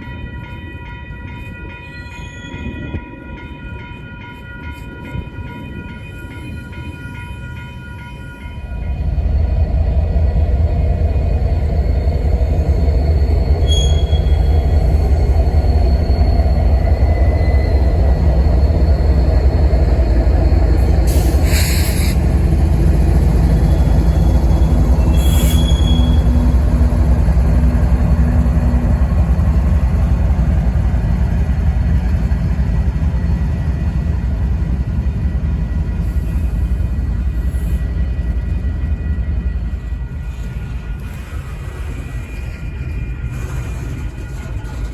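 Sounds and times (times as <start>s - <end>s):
train rumbling over track: 0.0s - 44.9s
faint wheel squeals: 13.4s - 17.9s, 23.5s - 26.5s
brief high screeches: 13.6s - 14.4s, 25.1s - 26.2s.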